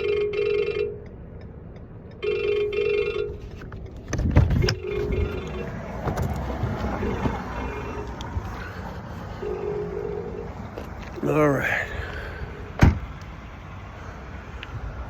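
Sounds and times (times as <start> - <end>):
electronic warning chime: 4.6 - 5.8
heavy thump: 12.8 - 13.1.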